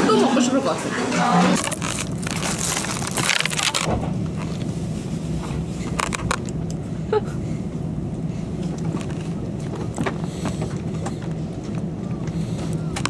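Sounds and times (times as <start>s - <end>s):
train carriage rumble: 0.0s - 13.0s
food packaging crinkling: 1.6s - 4.6s.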